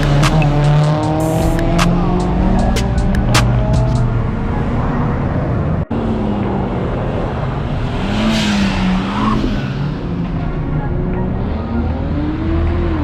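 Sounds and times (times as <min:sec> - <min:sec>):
car engines running: 0:00.0 - 0:13.0.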